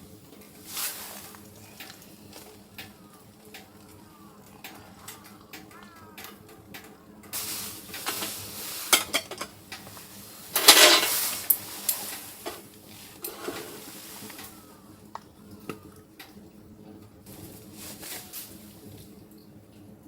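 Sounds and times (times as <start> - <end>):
cookware and utensils clinking: 7.3 - 14.7.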